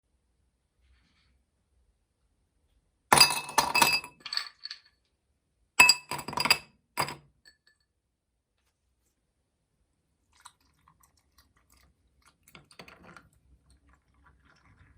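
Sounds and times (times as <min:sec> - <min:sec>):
glass clinking: 0:03.1 - 0:04.8, 0:05.8 - 0:07.6.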